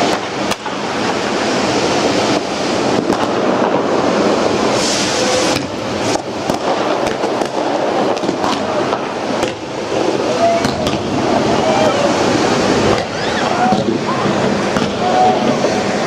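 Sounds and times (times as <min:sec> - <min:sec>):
firework hiss: 0:00.0 - 0:16.0
fireworks bangs: 0:00.0 - 0:16.0
fireworks crackling: 0:00.0 - 0:16.0.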